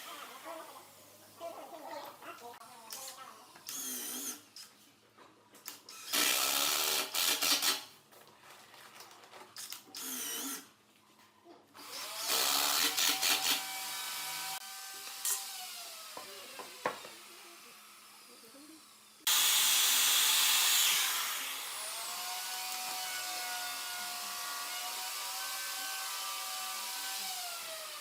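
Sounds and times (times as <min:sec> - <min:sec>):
woodworking power tool running: 0:11.8 - 0:28.0.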